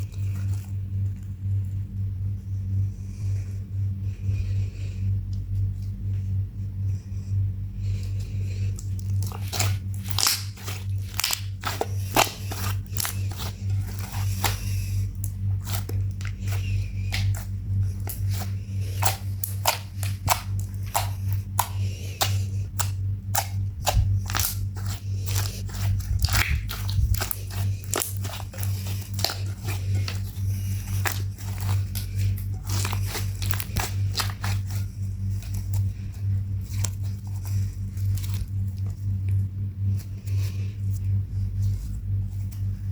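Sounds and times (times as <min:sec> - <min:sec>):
steady low hum: 0:00.0 - 0:42.9
slime squished by hand: 0:08.7 - 0:40.3.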